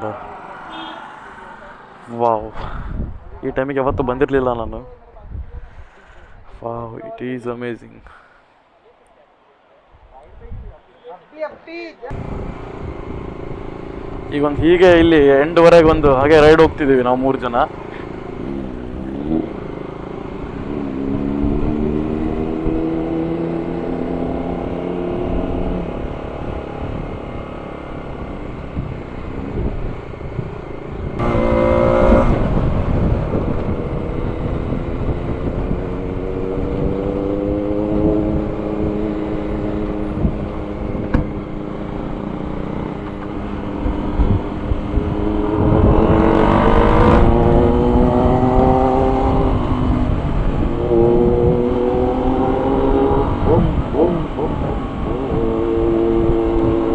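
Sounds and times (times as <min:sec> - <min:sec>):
wind rushing over microphone: 0:01.8 - 0:06.5, 0:12.1 - 0:16.9, 0:20.5 - 0:56.9
motorcycle engine accelerating: 0:12.1 - 0:56.9.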